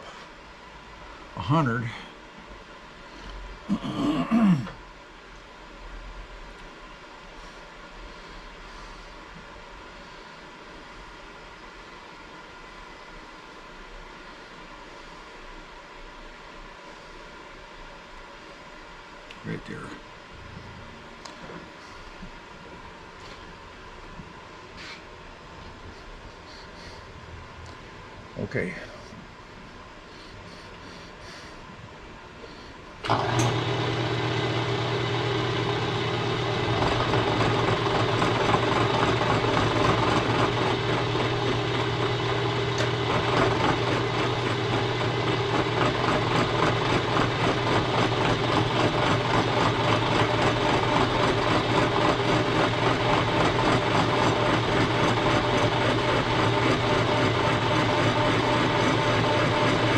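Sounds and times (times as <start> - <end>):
milling machine motor humming: 33.0 - 59.9
cutter cutting metal: 33.1 - 59.9.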